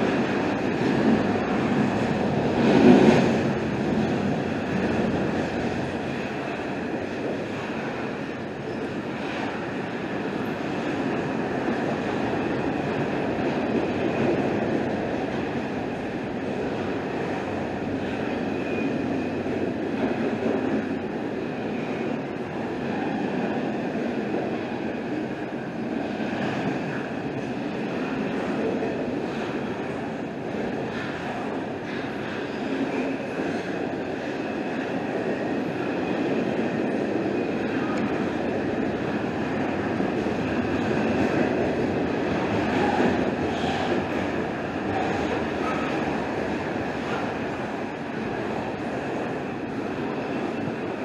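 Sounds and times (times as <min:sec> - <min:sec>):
freight train wheels rumbling: 0:00.0 - 0:51.0.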